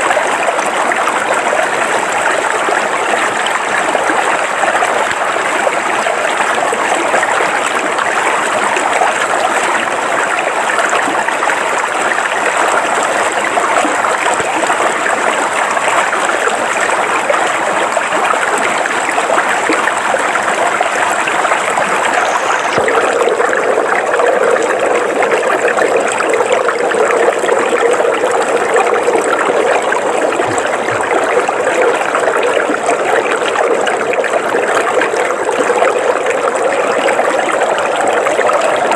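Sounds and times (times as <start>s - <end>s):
river water flowing over rocks: 0.0s - 38.9s.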